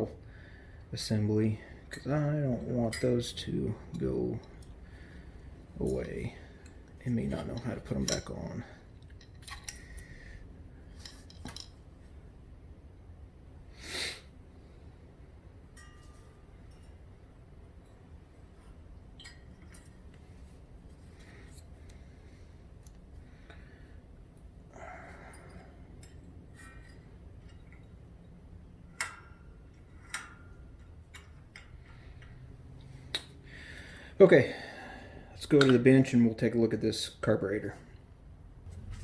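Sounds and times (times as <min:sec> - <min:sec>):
low steady hum: 0:00.0 - 0:39.0
metallic clicks of tools: 0:09.0 - 0:10.1
small metal parts clinking: 0:10.9 - 0:11.8.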